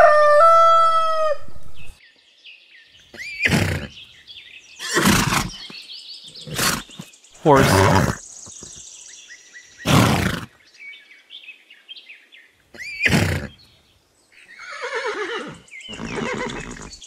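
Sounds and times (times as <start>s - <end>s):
horse neighing: 3.2s - 4.0s, 4.8s - 5.7s, 6.4s - 8.2s, 9.8s - 10.5s, 12.8s - 13.6s, 14.6s - 17.0s.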